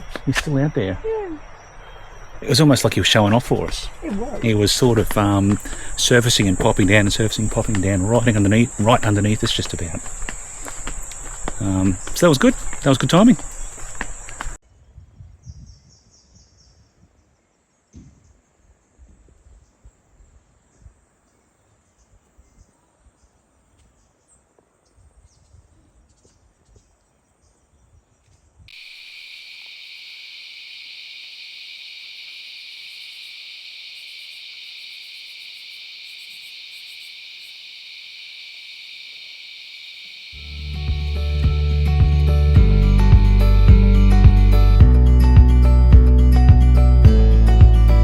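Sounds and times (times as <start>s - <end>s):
high-pitched insect chorus: 0.0s - 14.6s, 28.7s - 46.8s.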